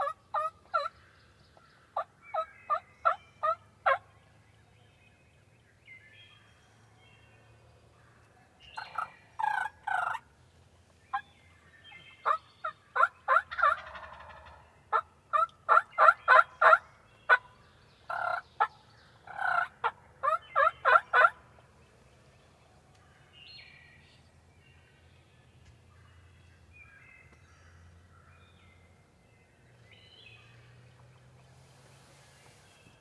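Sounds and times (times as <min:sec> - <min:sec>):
wild turkey calling: 0:00.0 - 0:04.0, 0:08.1 - 0:10.3, 0:11.0 - 0:21.7.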